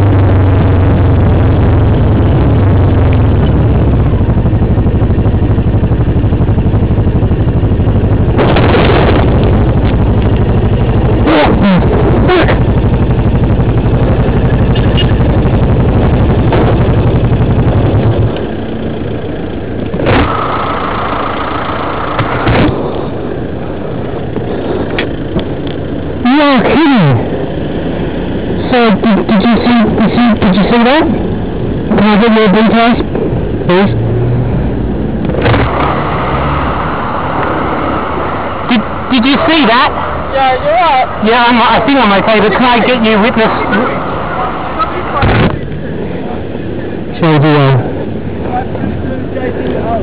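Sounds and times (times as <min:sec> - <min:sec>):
vehicle engine drone: 0:00.0 - 0:50.0
steady high tone: 0:35.6 - 0:45.3.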